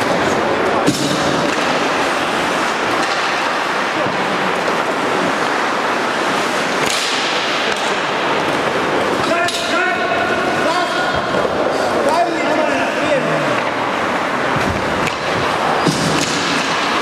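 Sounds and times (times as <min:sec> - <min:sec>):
skate blades scraping ice: 0:00.0 - 0:09.4.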